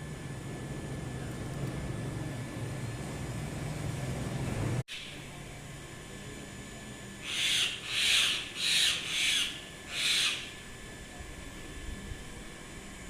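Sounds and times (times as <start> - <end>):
bird calling: 7.2 - 10.6.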